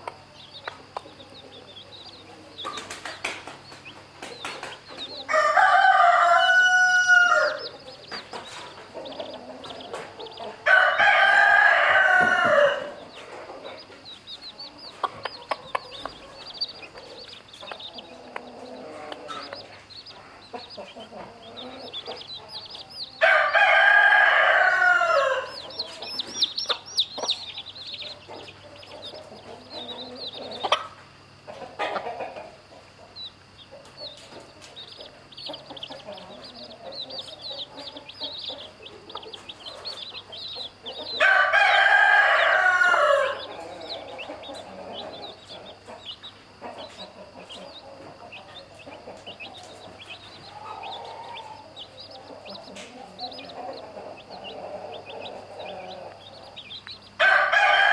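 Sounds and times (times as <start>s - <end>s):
chicks peeping: 0.0s - 57.9s
rooster crowing: 5.2s - 7.9s, 9.0s - 13.8s, 20.9s - 30.8s, 35.7s - 46.2s, 49.3s - 57.9s.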